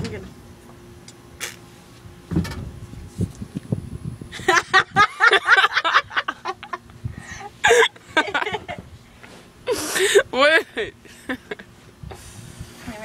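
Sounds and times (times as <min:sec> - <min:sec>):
person giggling and laughing: 0:04.3 - 0:08.8.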